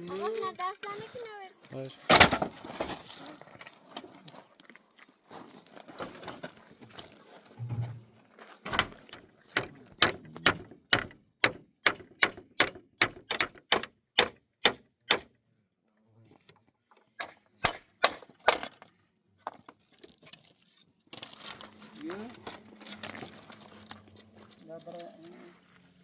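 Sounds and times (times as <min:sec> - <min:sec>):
timber being handled: 0:08.6 - 0:14.3
hammer striking wood: 0:08.7 - 0:15.4, 0:17.2 - 0:18.7.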